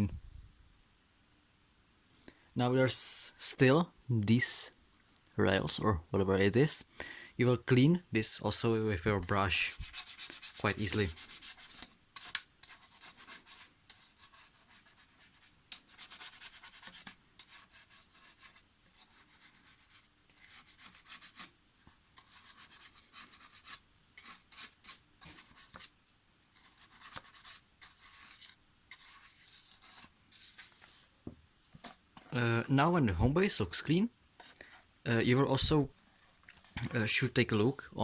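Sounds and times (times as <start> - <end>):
brush scrubbing plastic rails: 9.3 - 31.0.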